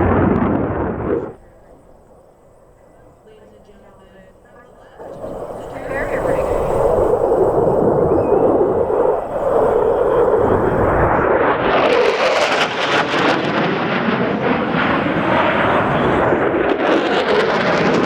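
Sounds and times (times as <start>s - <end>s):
jet engine roaring: 0.0s - 18.0s.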